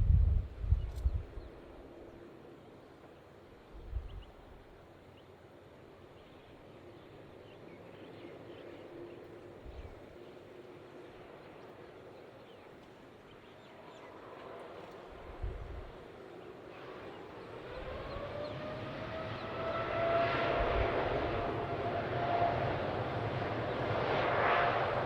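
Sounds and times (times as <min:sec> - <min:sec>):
wind thumps on microphone: 0:00.0 - 0:01.4
distant jet aircraft rumble: 0:00.0 - 0:25.0.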